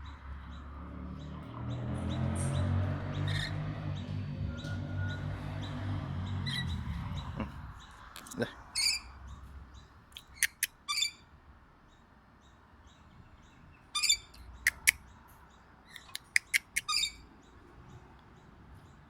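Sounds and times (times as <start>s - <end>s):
parrots chirping and screeching: 2.0s - 9.4s, 10.2s - 11.3s, 13.9s - 15.0s, 15.9s - 17.2s.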